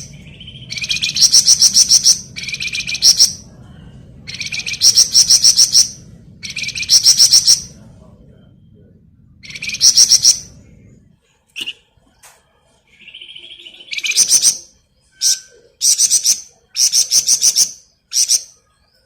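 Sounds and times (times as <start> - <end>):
songbird rattling song: 0.0 - 3.4, 4.3 - 7.7, 9.4 - 10.5, 13.0 - 18.6.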